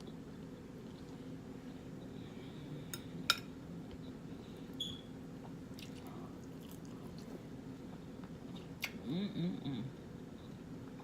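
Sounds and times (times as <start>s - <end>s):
low background hum: 0.0s - 11.0s
wet squishing and chewing: 5.4s - 7.5s.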